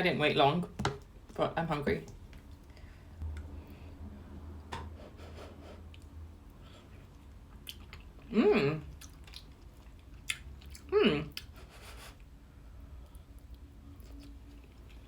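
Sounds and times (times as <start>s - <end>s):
person chewing food: 5.8s - 12.3s, 13.0s - 15.0s
person humming mm: 8.3s - 8.9s, 10.9s - 11.4s.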